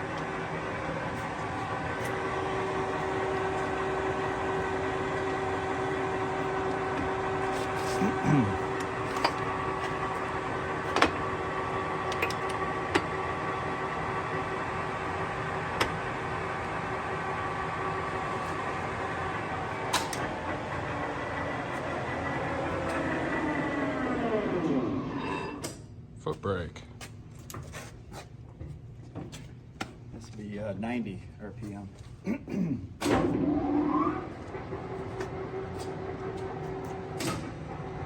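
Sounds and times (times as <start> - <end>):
lathe humming: 0.0 - 25.6
short falling whine: 23.0 - 25.7.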